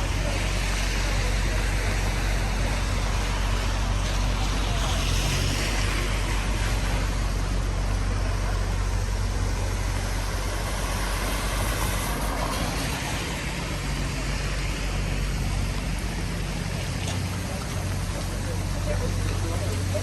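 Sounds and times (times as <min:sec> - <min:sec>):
rain hiss on street: 0:00.0 - 0:20.0
vehicle engine idling: 0:00.0 - 0:20.0.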